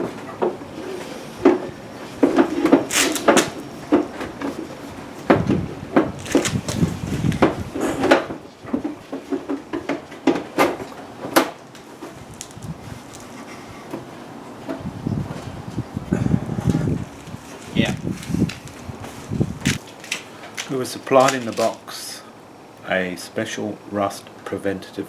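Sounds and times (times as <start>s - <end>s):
scraping and rustling: 0.0s - 21.9s
tools and parts being handled: 1.4s - 5.4s, 6.0s - 14.8s.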